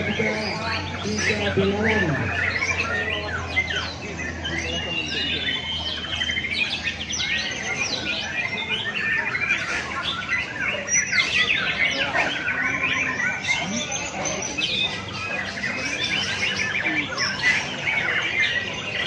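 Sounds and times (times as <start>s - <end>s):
many songbirds singing: 0.0s - 19.0s.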